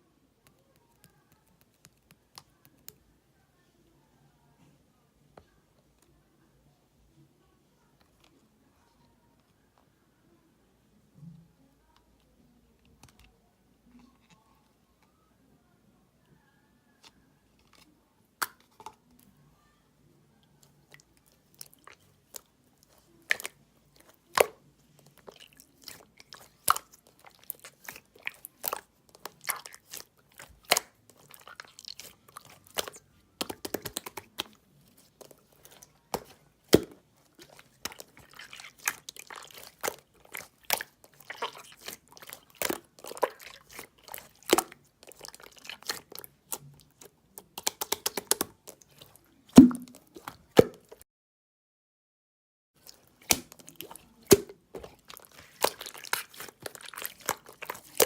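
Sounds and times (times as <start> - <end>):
slime clicking and popping: 25.2 - 50.8, 52.8 - 58.0.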